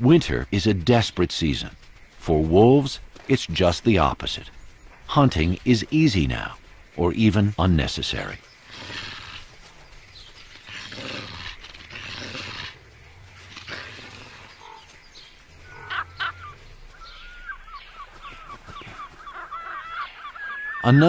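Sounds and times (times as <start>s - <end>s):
sharp bird calls: 0.0s - 21.0s
quick chattering bird calls: 1.0s - 21.0s.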